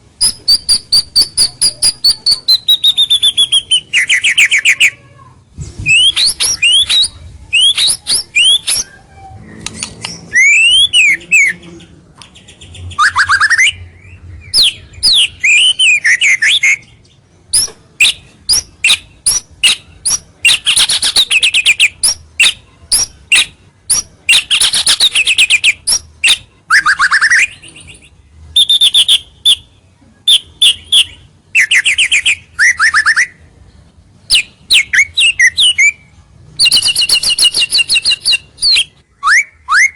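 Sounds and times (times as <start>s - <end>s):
songbird singing whistles and trills: 0.2s - 5.0s, 5.8s - 33.4s, 34.2s - 39.9s.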